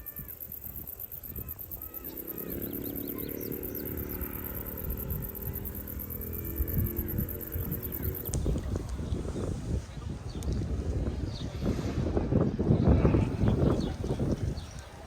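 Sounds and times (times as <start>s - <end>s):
bird chirps: 0.0s - 8.4s
race car engine approaching: 1.6s - 9.0s.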